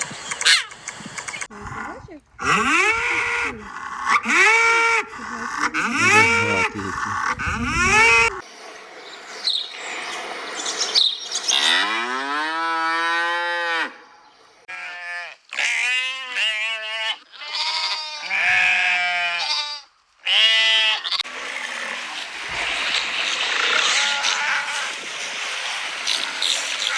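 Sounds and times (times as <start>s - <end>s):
farm animals mooing or bleating: 1.5s - 8.4s, 11.6s - 14.0s, 14.7s - 21.2s.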